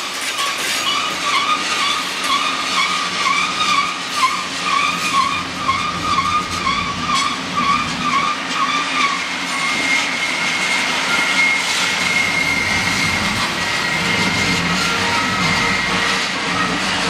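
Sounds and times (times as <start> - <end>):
train wheels rumbling on rails: 0.0 - 17.0
wheel flange squeal: 0.0 - 17.0.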